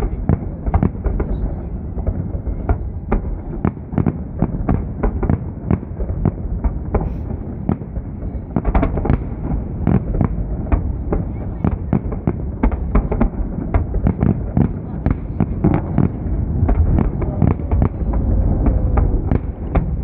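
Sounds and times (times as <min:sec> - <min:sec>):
low rumble: 0:15.2 - 0:20.0.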